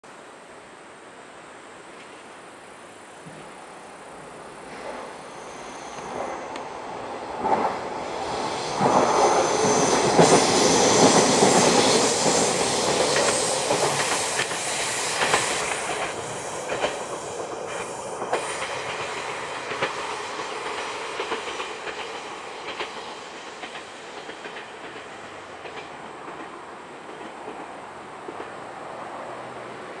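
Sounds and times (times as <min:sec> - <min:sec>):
diesel train passing: 0:03.2 - 0:30.0
wheels clickety-clack on rail joints: 0:07.3 - 0:30.0.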